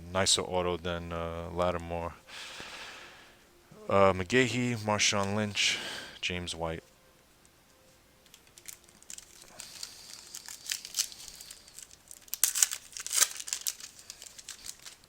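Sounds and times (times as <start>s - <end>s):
card pack wrapper crinkling: 8.2s - 15.0s.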